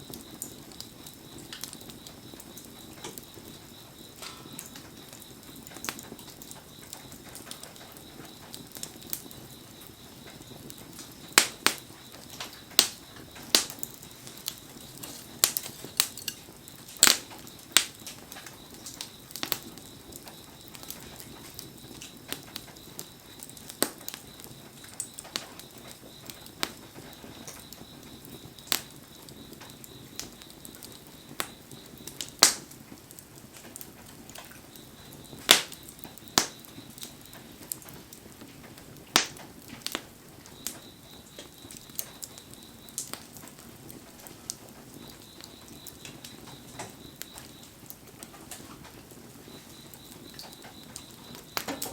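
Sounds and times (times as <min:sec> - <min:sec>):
bonfire crackling and popping: 0:00.0 - 0:51.9.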